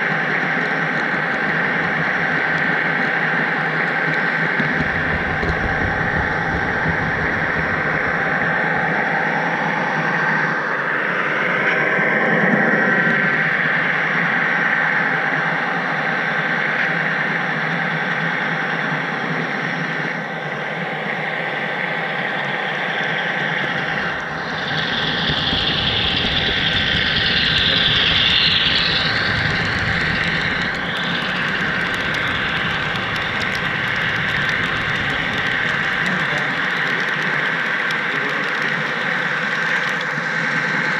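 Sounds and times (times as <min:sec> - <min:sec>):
model train rolling: 0:00.0 - 0:10.5, 0:23.6 - 0:40.9
deeper rumble: 0:04.2 - 0:10.5, 0:23.5 - 0:40.8
high hiss: 0:23.9 - 0:37.4.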